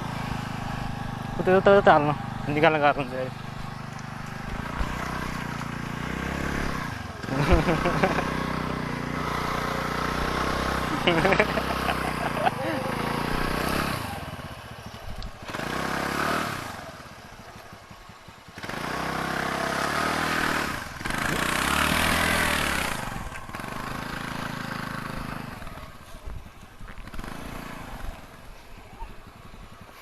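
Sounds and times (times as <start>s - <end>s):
motor scooter engine revving: 0.0s - 30.0s.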